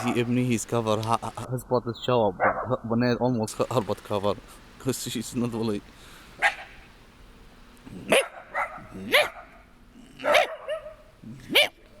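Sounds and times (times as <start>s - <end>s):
dog barking: 0.0s - 0.3s, 2.4s - 2.7s, 6.4s - 6.7s, 8.0s - 9.6s, 10.2s - 11.8s.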